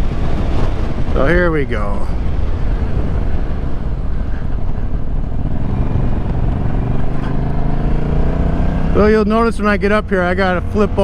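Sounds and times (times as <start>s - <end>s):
wind noise on microphone: 0.0s - 9.8s
motorcycle engine running: 2.2s - 11.0s.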